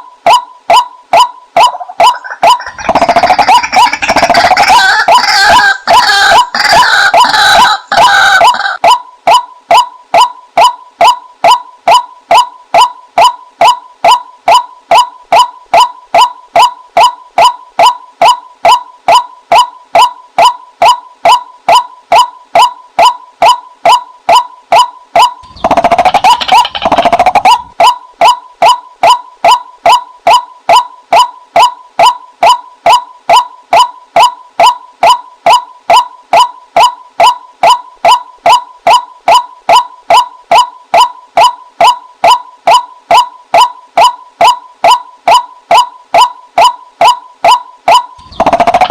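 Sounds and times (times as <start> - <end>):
waterhen calls: 1.6 - 8.8, 25.2 - 27.9
harsh bursts of calling: 1.7 - 8.8.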